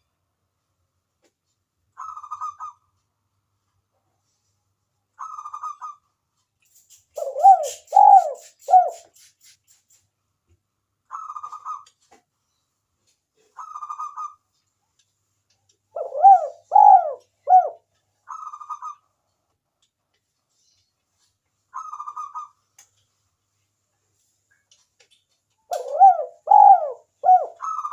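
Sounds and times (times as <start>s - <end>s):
dove cooing: 7.2s - 9.0s, 16.0s - 19.0s, 25.7s - 27.9s.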